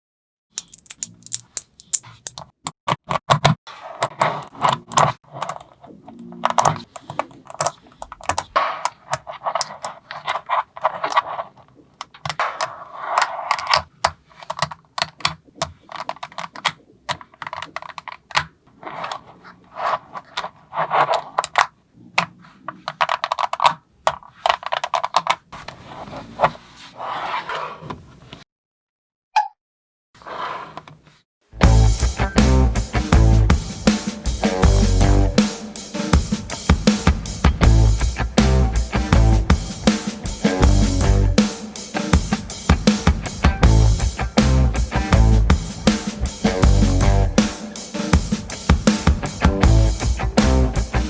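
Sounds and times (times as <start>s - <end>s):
magnetic balls rattling: 0.6s - 2.4s, 4.5s - 25.4s
magnetic balls clicking together: 0.6s - 3.2s, 4.2s - 11.2s, 13.5s - 18.5s, 21.4s - 25.4s.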